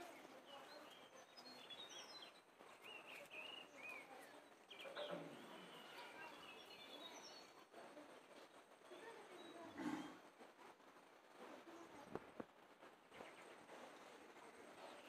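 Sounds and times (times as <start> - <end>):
birds chirping: 0.0 - 10.2
outdoor background hiss: 0.0 - 15.0.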